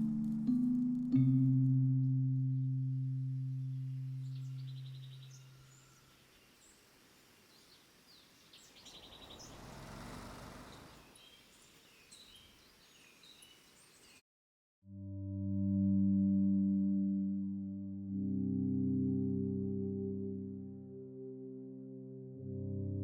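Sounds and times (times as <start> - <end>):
low sustained tone: 0.0 - 6.2
outdoor background noise: 2.5 - 14.2
small birds chirping and trilling: 3.8 - 14.2.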